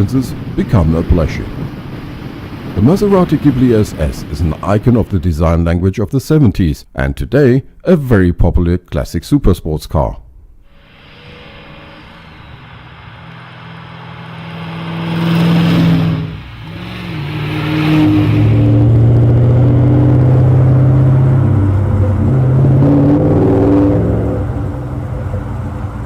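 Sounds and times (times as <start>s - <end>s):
car engine accelerating: 10.7s - 26.0s.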